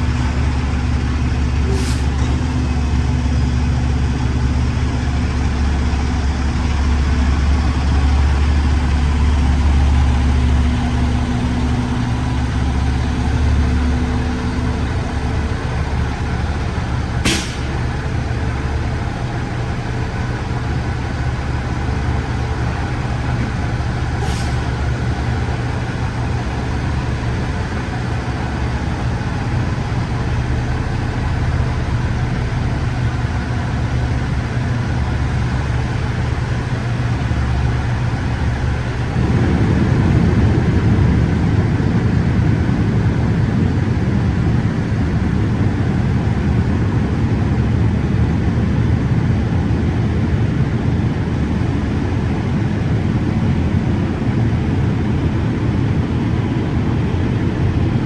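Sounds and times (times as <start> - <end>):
truck diesel engine running: 0.0 - 58.0
air brake hiss: 1.6 - 2.4, 17.2 - 17.8, 24.2 - 24.8.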